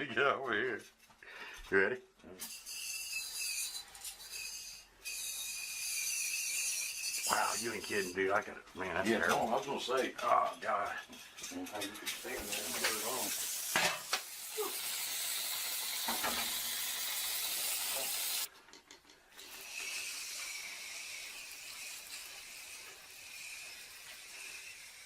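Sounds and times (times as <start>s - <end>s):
aerosol spray hissing: 12.1s - 18.5s.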